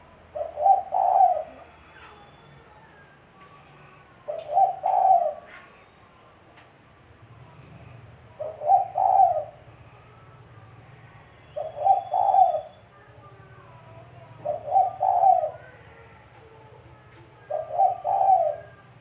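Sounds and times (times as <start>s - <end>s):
dove cooing: 0.0s - 2.2s, 4.2s - 5.8s, 7.6s - 9.7s, 11.6s - 12.8s, 13.9s - 16.3s, 17.4s - 19.0s.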